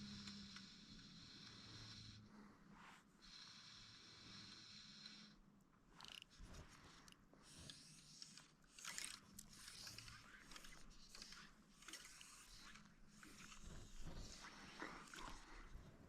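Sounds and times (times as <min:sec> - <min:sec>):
small clicks: 0:06.0 - 0:15.5.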